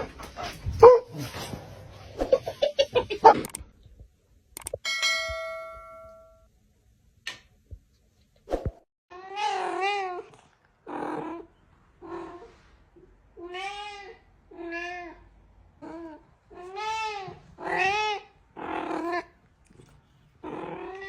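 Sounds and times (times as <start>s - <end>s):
ringing bell-like tone: 4.8s - 6.5s
cat meowing: 15.8s - 19.3s.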